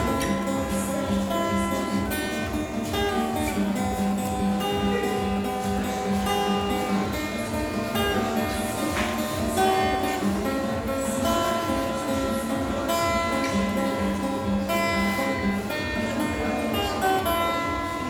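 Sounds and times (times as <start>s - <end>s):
strummed acoustic guitar: 0.0s - 18.0s.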